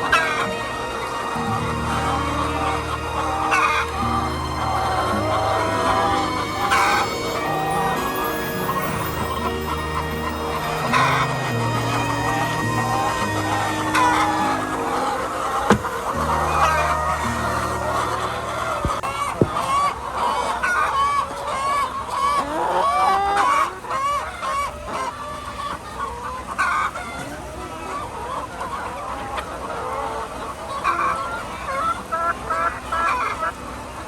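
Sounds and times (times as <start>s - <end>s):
hens clucking: 1.2s - 21.0s.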